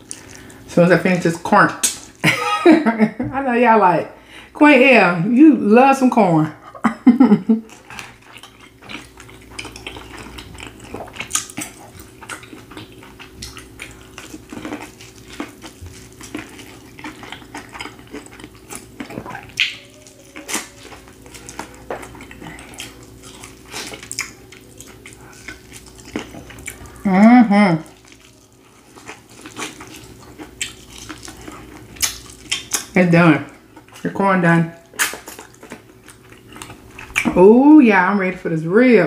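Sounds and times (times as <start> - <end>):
faint steady hum: 0.0 - 39.0
chewing corn on the cob: 7.5 - 27.1, 27.8 - 34.1, 34.8 - 37.4.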